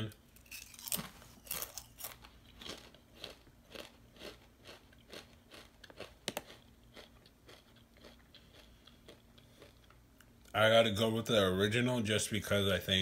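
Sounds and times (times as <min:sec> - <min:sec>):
crunchy chips being chewed: 0:00.4 - 0:10.3.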